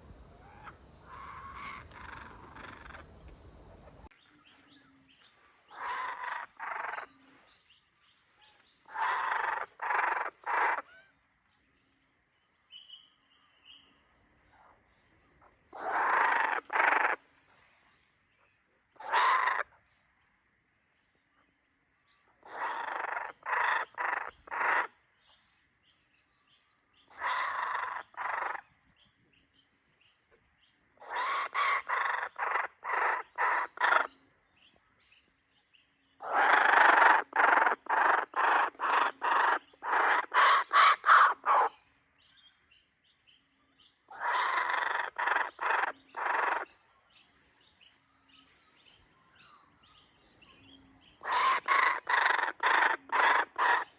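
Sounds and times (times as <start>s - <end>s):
kookaburras laughing calls: 0.0s - 3.1s, 8.9s - 11.1s, 15.7s - 17.2s, 19.0s - 19.7s, 22.4s - 24.9s, 27.1s - 28.6s, 31.0s - 34.2s, 36.2s - 41.8s, 44.1s - 46.7s, 51.2s - 53.9s.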